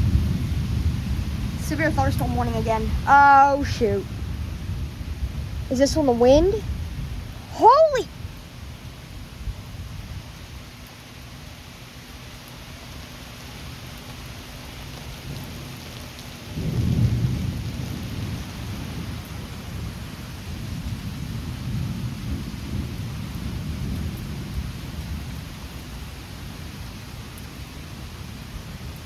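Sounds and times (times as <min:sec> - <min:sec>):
steady rain: 0:00.0 - 0:29.0
thunder rumble: 0:00.0 - 0:29.0.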